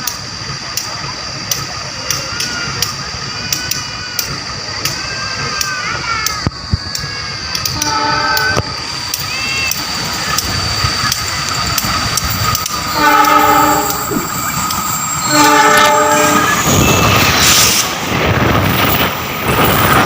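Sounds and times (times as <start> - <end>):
train rumbling: 0.0 - 20.0
train wheels clattering: 0.0 - 20.0
locomotive horn blasts: 7.7 - 8.9, 13.0 - 14.3, 15.2 - 16.6.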